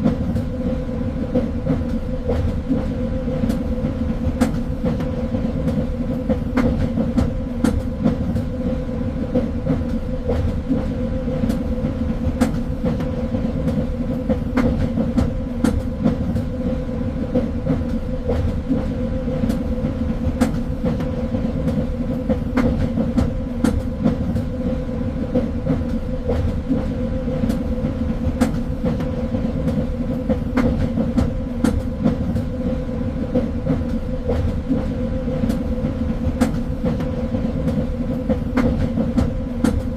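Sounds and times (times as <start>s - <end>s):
train rumbling along track: 0.0s - 39.9s.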